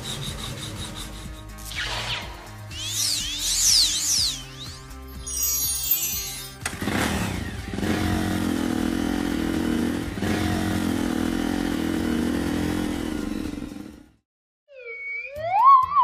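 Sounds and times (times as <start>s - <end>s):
cartoon engine running: 0.0s - 7.5s.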